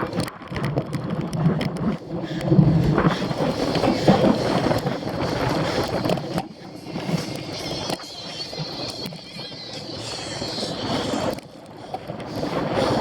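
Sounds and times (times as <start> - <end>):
bike rattling and clicking: 0.0 - 13.0
wind buffeting microphone: 0.0 - 13.0.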